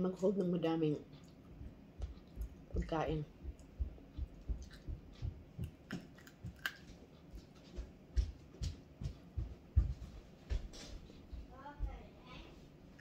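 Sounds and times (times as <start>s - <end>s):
chewing clicks and taps: 1.1s - 9.3s.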